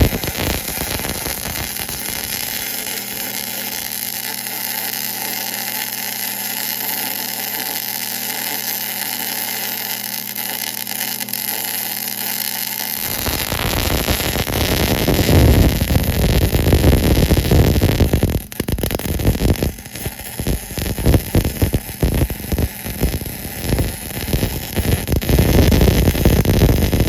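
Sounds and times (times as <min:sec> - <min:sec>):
rough noise with low rumble: 0:00.0 - 0:02.9, 0:13.0 - 0:27.0
mechanical hum with hiss: 0:00.0 - 0:27.0.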